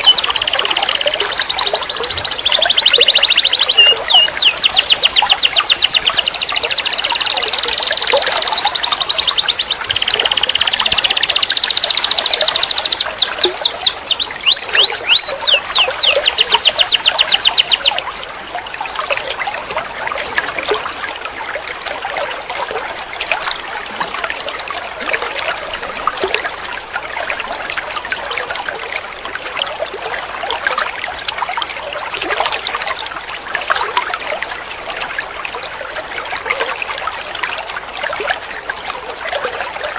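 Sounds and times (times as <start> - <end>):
canary singing trills: 0.0 - 18.0
faint bird chirps: 0.0 - 18.0
trickling water-like noise: 0.0 - 39.9.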